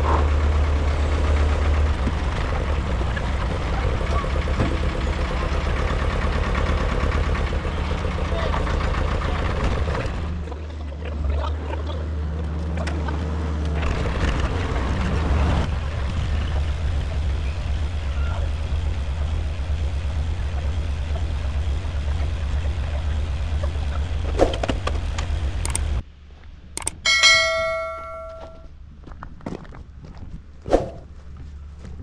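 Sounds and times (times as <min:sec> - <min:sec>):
vehicle engine running: 0:00.0 - 0:11.3.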